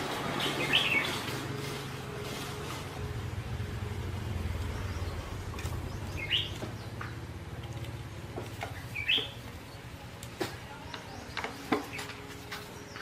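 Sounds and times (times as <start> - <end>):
bird chirps: 0.4 - 1.3, 4.4 - 7.2, 8.6 - 9.9
low steady rumble: 1.5 - 10.2.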